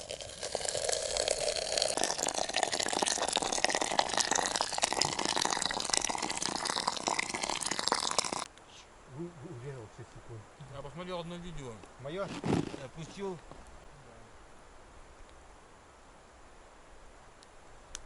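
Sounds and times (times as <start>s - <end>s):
tea pouring from a kettle: 0.0s - 8.5s.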